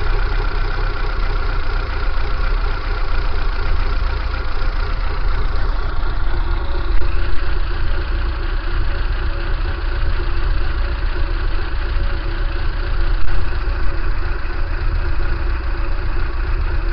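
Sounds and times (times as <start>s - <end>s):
car engine idling roughly: 0.0s - 16.9s.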